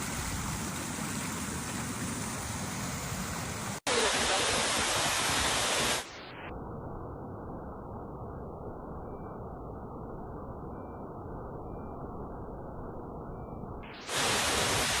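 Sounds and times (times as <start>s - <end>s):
rushing water: 0.0s - 6.2s, 14.0s - 15.0s.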